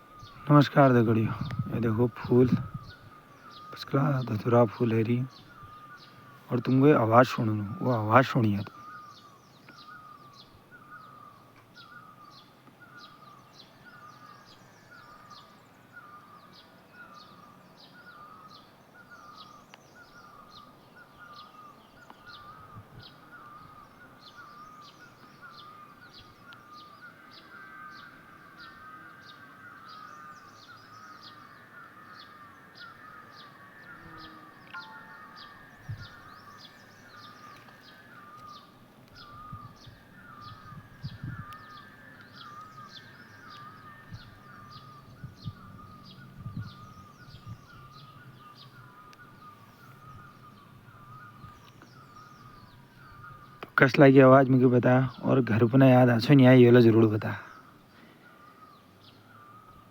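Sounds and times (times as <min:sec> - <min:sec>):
short wavering bird note: 0:34.7 - 0:35.8
high short bird chirps: 0:34.7 - 0:36.2.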